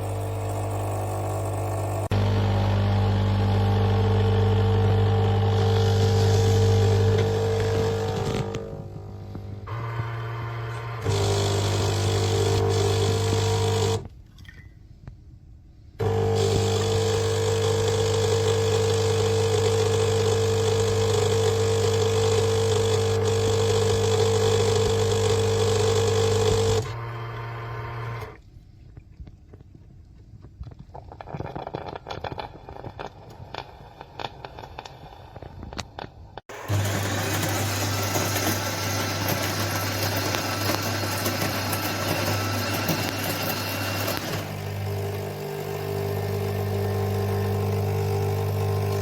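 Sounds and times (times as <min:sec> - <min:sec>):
coffee machine buzzing hum: 0:00.0 - 0:14.1, 0:16.0 - 0:28.4, 0:36.5 - 0:49.0.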